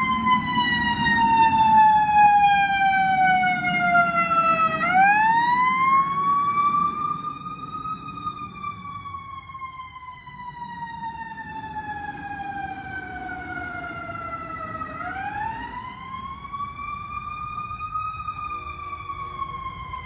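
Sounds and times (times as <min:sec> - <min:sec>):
fire truck siren wailing: 0:00.0 - 0:20.0
low rumble of truck on road: 0:00.0 - 0:20.0.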